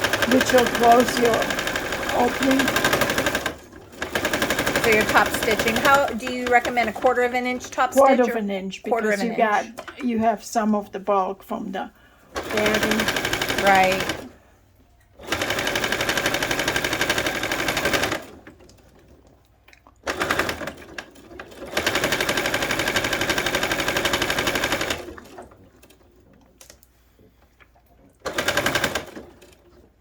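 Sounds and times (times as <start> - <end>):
sewing machine stitching fast: 0.0 - 8.1, 12.3 - 14.4, 15.2 - 19.1, 20.1 - 26.1, 28.2 - 29.8.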